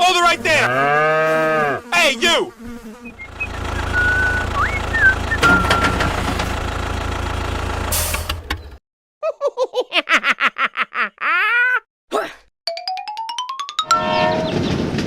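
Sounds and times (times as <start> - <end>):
low engine rumble: 3.1 - 8.8.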